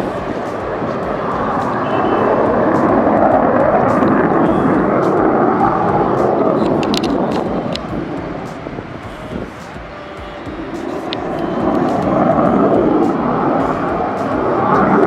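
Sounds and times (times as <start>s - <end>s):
jet engine noise: 0.0s - 15.0s.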